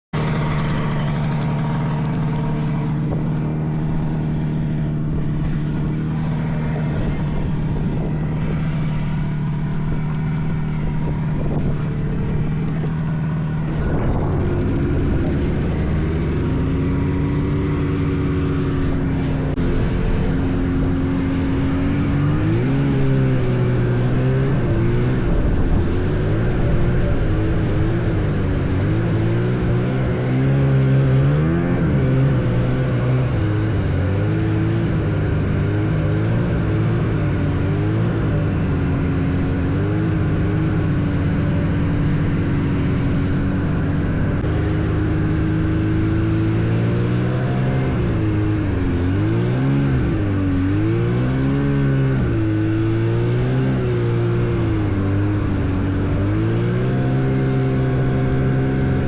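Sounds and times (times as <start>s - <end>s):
snowmobile two-stroke engine: 0.0s - 59.0s.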